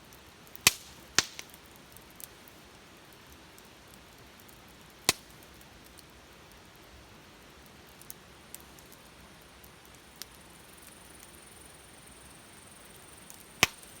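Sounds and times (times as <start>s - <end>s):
wood fire burning with pops: 0.0s - 14.0s
loud sharp crack: 0.6s - 1.6s, 13.3s - 14.0s.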